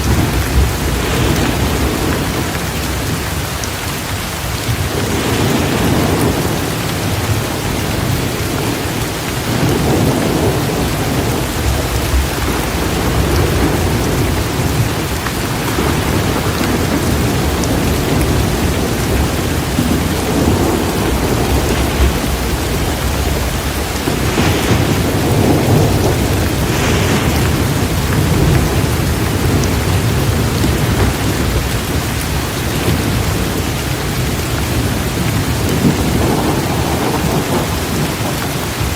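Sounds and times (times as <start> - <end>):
rolling thunder: 0.0 - 3.7, 4.4 - 38.9
torrential rain: 0.0 - 38.9
sharp thunder cracks: 9.5 - 38.9.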